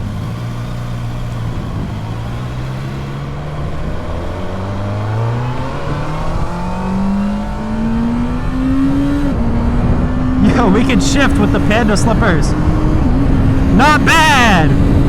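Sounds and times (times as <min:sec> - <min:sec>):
motorcycle engine accelerating: 0:00.0 - 0:15.0
wind rush on microphone: 0:03.6 - 0:15.0.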